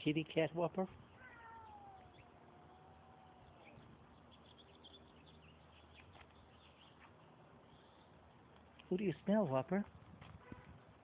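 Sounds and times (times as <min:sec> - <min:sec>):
faint bird chirps: 0:01.0 - 0:08.2.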